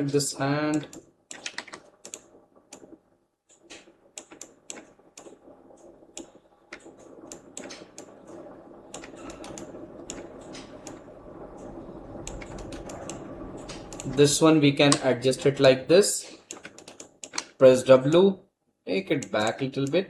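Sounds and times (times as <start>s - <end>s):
computer keys clicking: 0.7s - 2.8s, 11.6s - 14.2s, 16.5s - 17.6s
low background rumble: 3.8s - 16.6s.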